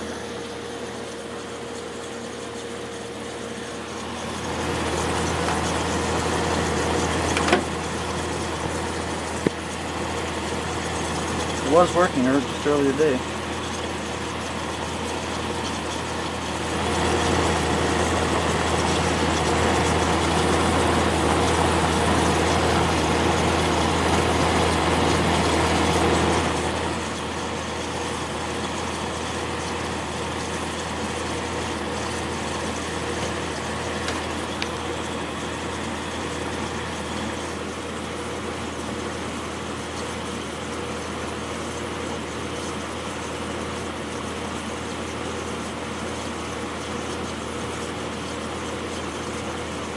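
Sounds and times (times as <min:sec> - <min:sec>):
dehumidifier compressor hum: 0:00.0 - 0:49.9
fan rushing air: 0:03.6 - 0:13.4.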